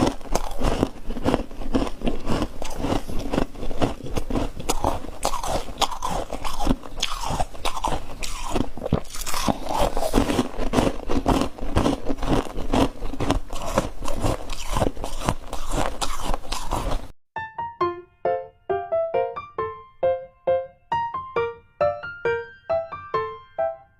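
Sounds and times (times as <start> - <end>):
ice being chewed: 0.0 - 17.1
piano music: 17.4 - 23.9.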